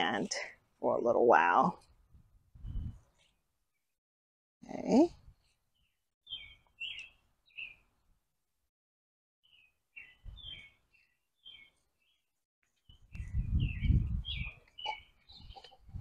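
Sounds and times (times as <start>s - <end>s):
birds chirping: 5.7s - 7.9s, 9.4s - 16.0s.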